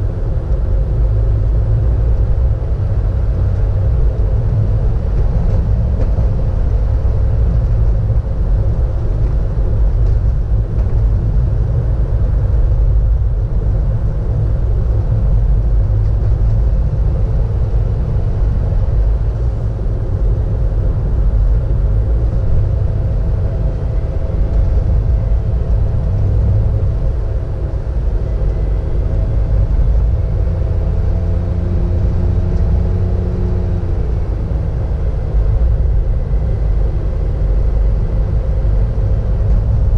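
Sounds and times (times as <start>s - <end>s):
car engine and tyre rumble: 0.0s - 39.9s
faint engine tone: 0.0s - 39.9s.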